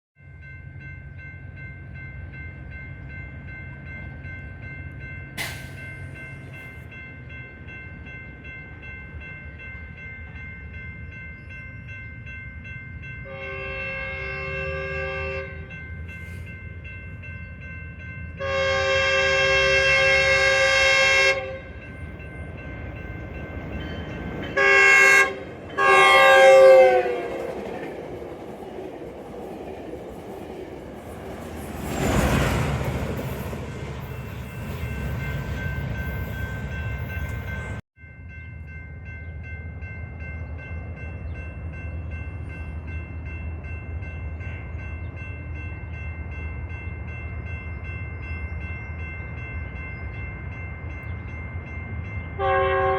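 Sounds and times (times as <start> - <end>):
train low rumble: 0.2 - 52.9
locomotive air horn blasts: 13.2 - 15.7, 18.4 - 21.8, 24.6 - 27.4, 52.4 - 52.9.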